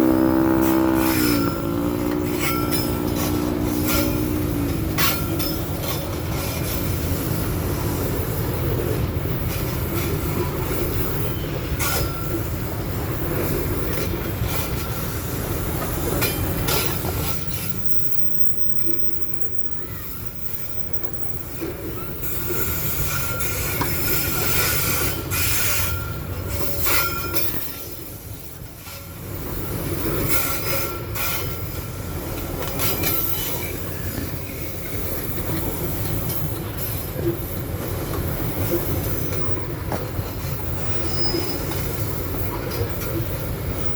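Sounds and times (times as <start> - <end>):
high wheel squeal: 0.0 - 9.4, 38.3 - 43.9
rail joint clicks: 0.0 - 19.4, 20.0 - 43.9
train wagons rumbling on rails: 0.0 - 43.9.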